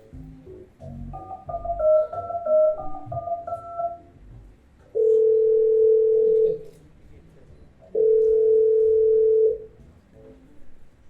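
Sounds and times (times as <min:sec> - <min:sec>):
electronic keyboard melody: 0:00.0 - 0:06.7
steady telephone tone: 0:01.2 - 0:04.2, 0:05.0 - 0:06.6, 0:08.0 - 0:09.7.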